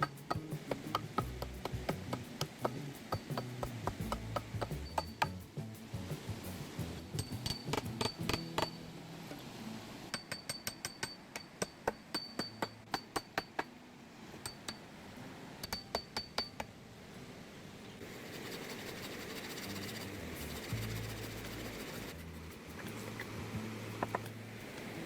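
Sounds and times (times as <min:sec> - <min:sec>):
sharp metallic taps: 0:00.0 - 0:06.4, 0:07.1 - 0:08.8
steady hiss: 0:00.0 - 0:10.2, 0:17.6 - 0:25.0.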